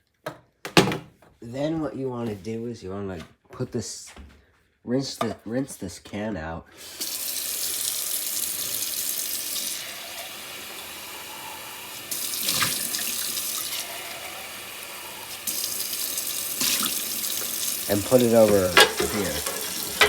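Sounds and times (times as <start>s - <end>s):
tap water running into sink: 7.0s - 20.0s.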